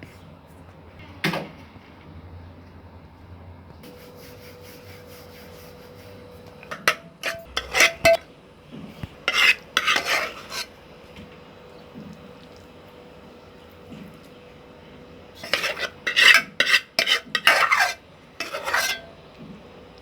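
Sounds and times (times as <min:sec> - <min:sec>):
spoon scraping steel dishes: 0:06.6 - 0:08.2, 0:09.2 - 0:10.8, 0:15.4 - 0:19.2.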